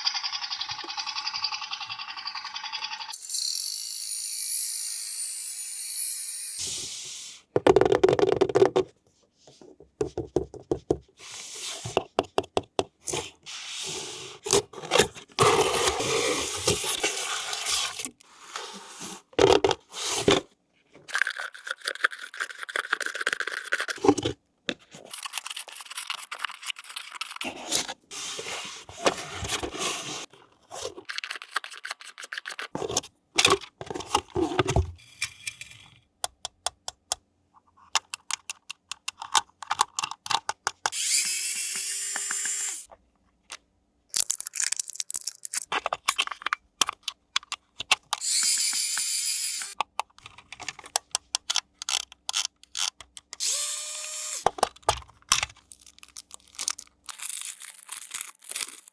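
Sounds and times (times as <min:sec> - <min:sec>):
packaging clicks: 0:54.4 - 0:58.9
packaging scraping and tearing: 0:55.6 - 0:58.9.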